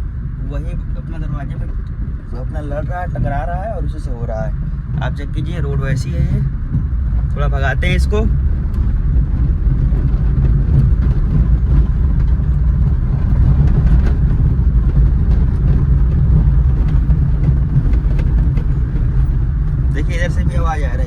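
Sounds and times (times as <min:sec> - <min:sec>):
road and engine rumble: 0:00.0 - 0:21.0
interior rattles clicking: 0:05.0 - 0:21.0.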